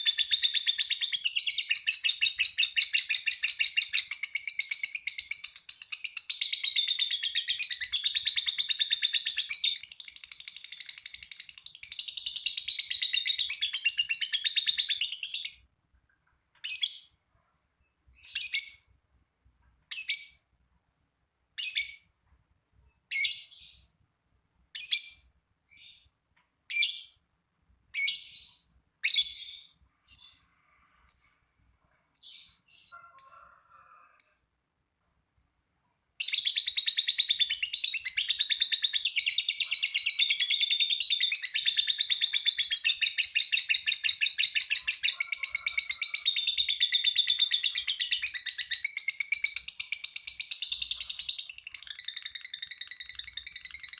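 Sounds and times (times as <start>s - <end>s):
lovebird chattering trill: 0.0s - 15.6s, 36.2s - 53.9s.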